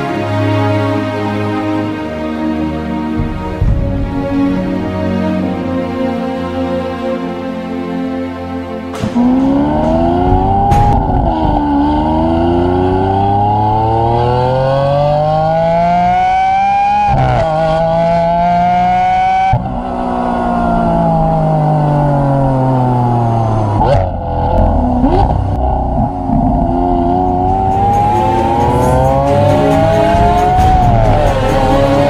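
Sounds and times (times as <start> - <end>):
car engine accelerating hard: 8.9 - 32.0.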